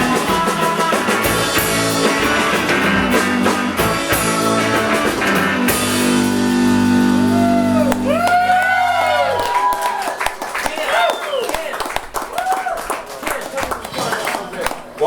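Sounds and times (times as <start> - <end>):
drum kit: 0.0 - 8.8
electric guitars: 0.0 - 9.4.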